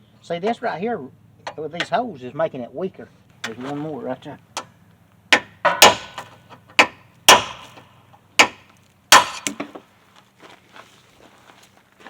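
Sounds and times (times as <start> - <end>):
hammer striking metal punch: 5.3 - 9.8.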